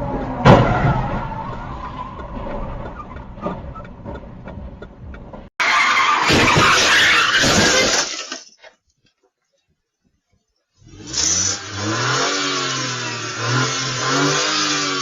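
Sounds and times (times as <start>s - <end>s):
car road noise: 0.0s - 8.0s.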